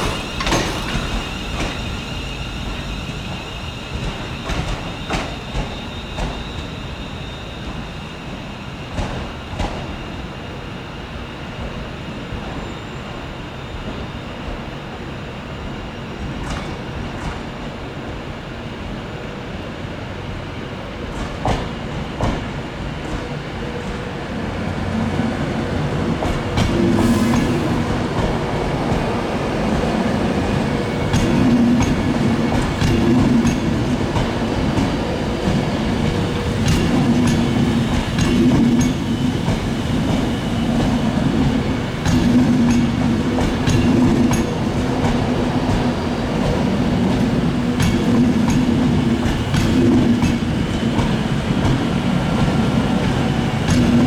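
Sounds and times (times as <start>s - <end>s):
train wheels clacking over rail joints: 0.0s - 2.0s, 26.1s - 54.0s
train rumble: 0.0s - 54.0s.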